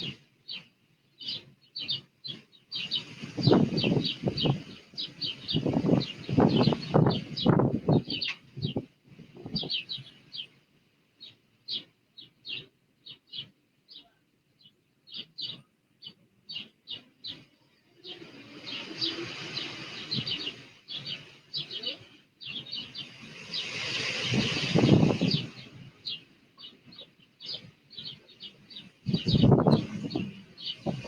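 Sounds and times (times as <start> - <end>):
small birds chirping: 0.0 - 31.0
steady rushing noise: 18.2 - 21.8, 22.6 - 26.2.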